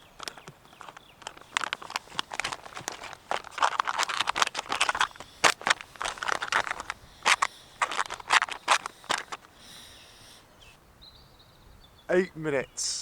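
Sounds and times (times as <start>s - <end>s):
foil pouch crinkling: 0.0s - 10.0s.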